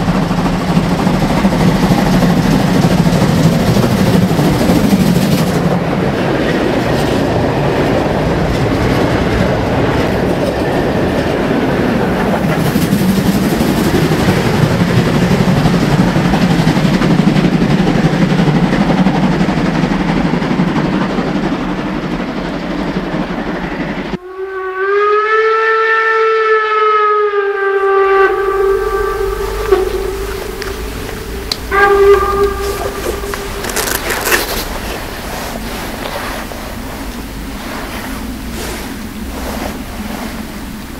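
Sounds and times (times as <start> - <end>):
steam train running past: 0.0 - 40.9
steam whistle: 24.2 - 34.5.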